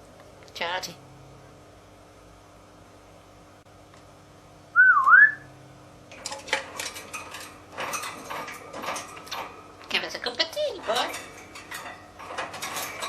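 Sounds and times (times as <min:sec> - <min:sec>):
parrot whistling: 0:04.8 - 0:05.4
sharp clicks and clatters: 0:06.1 - 0:13.0.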